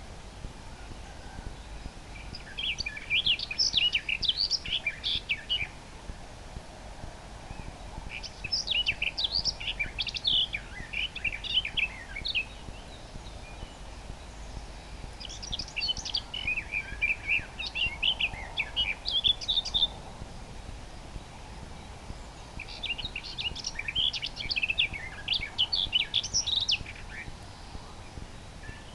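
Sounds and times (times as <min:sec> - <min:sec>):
low background hiss: 0:00.0 - 0:28.9
nightingale singing: 0:00.0 - 0:28.9.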